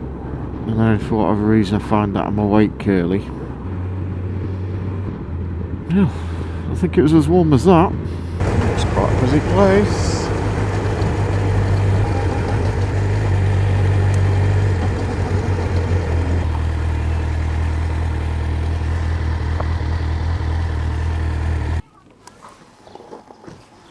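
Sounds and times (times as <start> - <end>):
motorcycle engine idling: 8.2 - 21.8.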